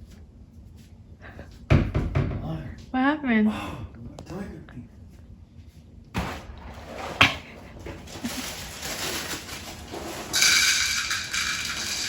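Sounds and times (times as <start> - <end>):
rustling: 6.2 - 12.0.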